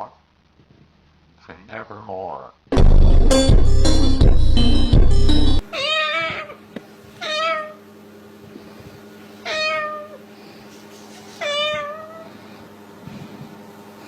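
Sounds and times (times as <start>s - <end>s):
meow-like calls: 5.7s - 6.6s, 7.2s - 7.8s, 9.4s - 10.2s, 11.4s - 12.3s.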